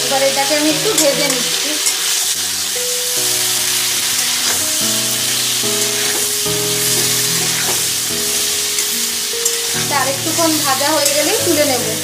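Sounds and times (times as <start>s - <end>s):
chicken sizzling in oil: 0.0s - 12.0s
soft background music: 0.0s - 12.0s
metal spatula scraping pan: 3.6s - 9.7s.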